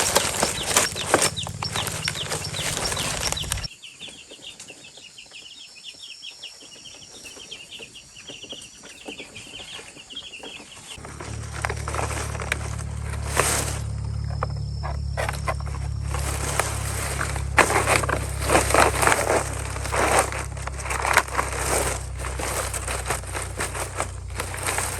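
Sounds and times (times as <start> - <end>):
low hum and clatter: 0.0 - 3.7, 11.0 - 24.9
rapid high chirping: 0.0 - 3.7
chickens calling: 0.0 - 5.4, 6.4 - 24.9.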